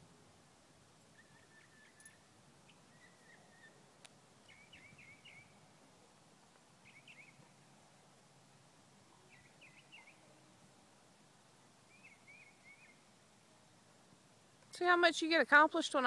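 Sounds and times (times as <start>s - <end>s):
songbird chirping: 0.8s - 7.8s, 9.0s - 10.7s, 11.5s - 14.0s.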